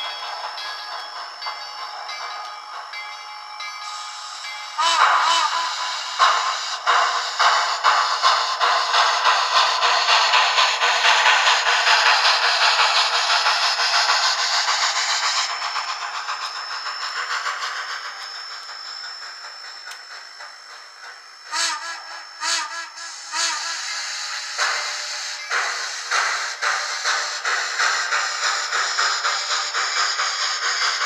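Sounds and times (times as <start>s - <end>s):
steam locomotive exhaust chuffs: 0.0s - 31.0s
steam whistle toots: 4.8s - 11.2s, 21.4s - 27.7s.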